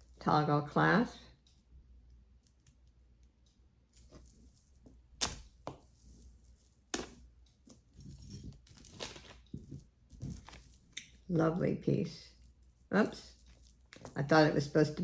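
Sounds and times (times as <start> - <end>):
beads and clasp clinking: 3.9 - 11.3, 12.2 - 14.7.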